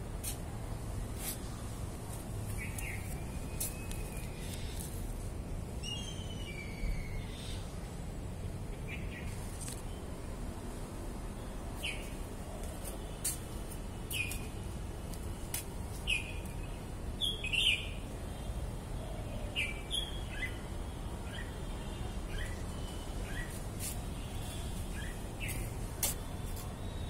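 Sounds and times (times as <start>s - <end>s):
low background noise: 0.0s - 27.0s
bird chirping: 5.8s - 7.7s, 16.0s - 18.0s.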